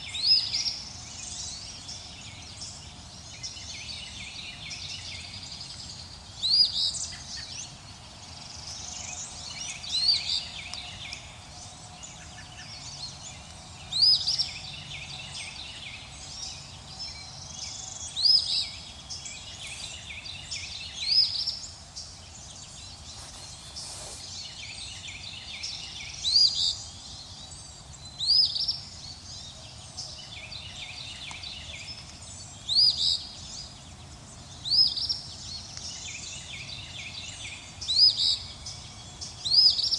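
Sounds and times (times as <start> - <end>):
birds chirping: 0.0 - 39.9
faint steady hiss: 0.0 - 39.9.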